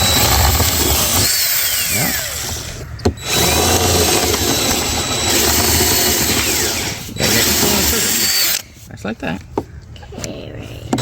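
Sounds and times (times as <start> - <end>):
power drill drilling metal: 0.0 - 8.6.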